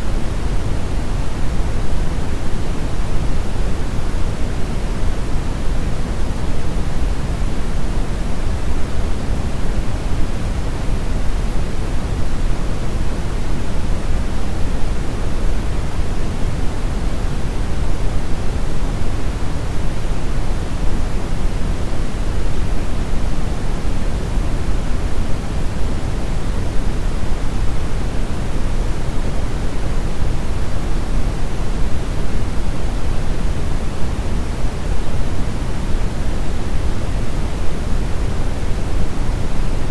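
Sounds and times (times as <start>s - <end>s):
brown noise hiss: 0.0s - 39.9s.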